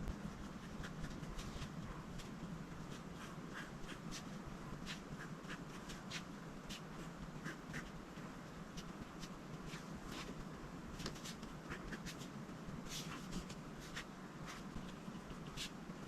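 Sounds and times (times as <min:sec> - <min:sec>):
steady low hiss: 0:00.0 - 0:16.0
coloring strokes on paper: 0:00.3 - 0:08.0, 0:11.0 - 0:15.8.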